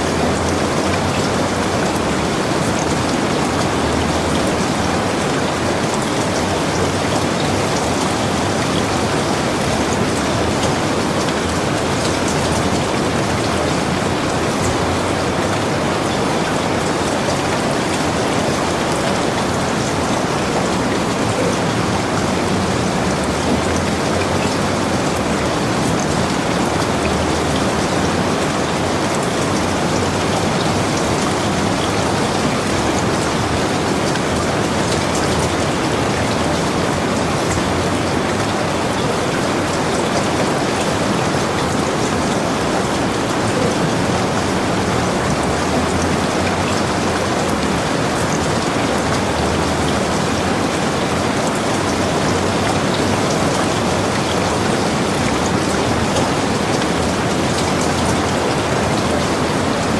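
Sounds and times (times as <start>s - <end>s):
heavy rain falling: 0.0s - 59.9s
raindrops ticking on surfaces: 0.0s - 59.9s.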